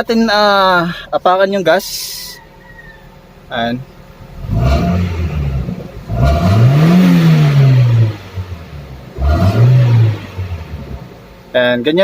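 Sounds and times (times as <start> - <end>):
car engine revving: 3.4 - 11.9.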